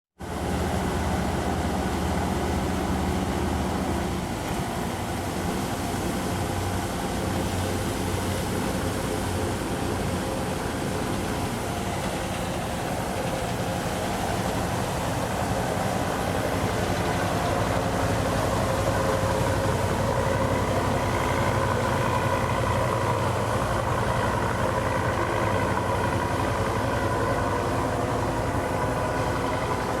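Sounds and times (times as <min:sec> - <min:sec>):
boat engine running: 0:00.2 - 0:30.0.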